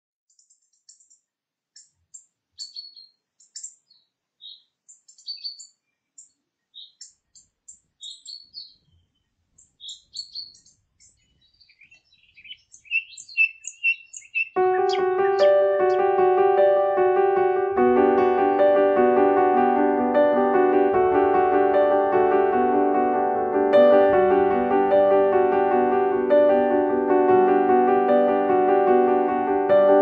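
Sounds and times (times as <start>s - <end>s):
songbirds chirping and singing: 0.3s - 16.1s.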